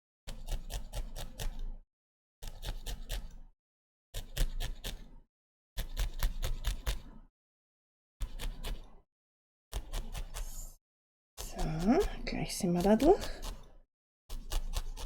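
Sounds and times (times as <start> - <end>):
scissors snipping felt: 0.3 - 1.7, 2.4 - 3.5, 4.2 - 5.1, 5.8 - 7.1, 8.2 - 9.0, 9.7 - 10.8, 11.4 - 15.0.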